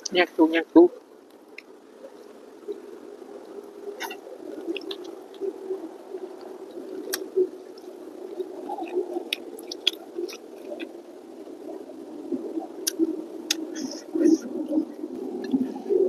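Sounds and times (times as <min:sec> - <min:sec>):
wet mouth clicks and smacks: 0:04.7 - 0:05.1, 0:08.8 - 0:10.9
person chewing food: 0:08.8 - 0:10.9.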